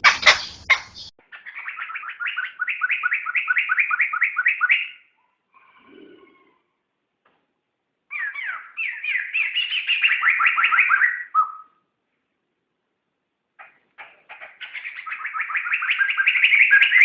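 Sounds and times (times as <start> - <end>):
bird singing whistled notes: 0.2 - 5.0, 8.1 - 11.8, 14.6 - 17.0.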